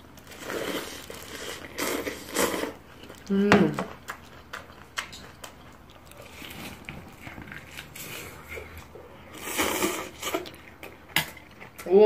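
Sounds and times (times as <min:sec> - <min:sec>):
chewing meat on the bone: 0:03.9 - 0:09.0.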